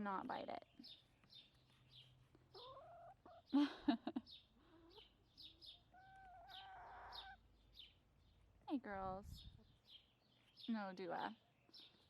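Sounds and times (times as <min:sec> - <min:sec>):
small birds chirping: 0:00.0 - 0:12.0
hens clucking: 0:02.5 - 0:03.5, 0:04.7 - 0:07.4.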